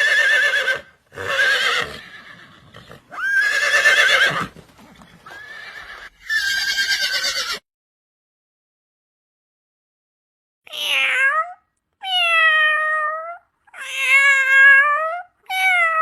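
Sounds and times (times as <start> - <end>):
horse whinnying: 0.0 - 7.6.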